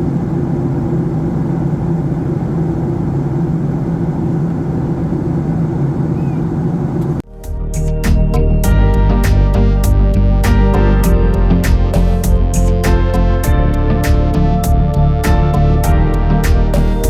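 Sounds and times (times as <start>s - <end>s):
airplane cabin roar: 0.0s - 17.0s
plucked guitar music: 7.3s - 17.0s.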